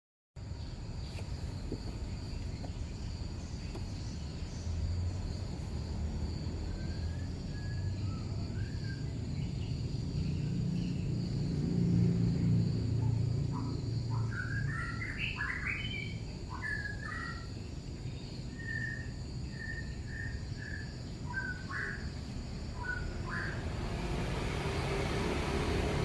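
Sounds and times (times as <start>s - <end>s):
high insect trill: 0.4s - 26.0s
bird chirps: 6.6s - 11.2s, 12.4s - 23.7s.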